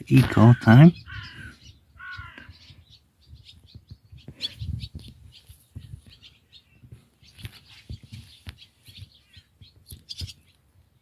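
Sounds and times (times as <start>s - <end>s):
small birds chirping: 0.0s - 11.0s
soft low thuds: 3.2s - 10.4s.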